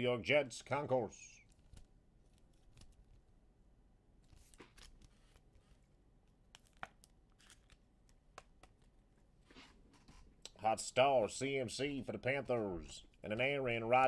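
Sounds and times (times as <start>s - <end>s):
trading cards rustling: 1.4s - 3.3s, 4.2s - 10.4s.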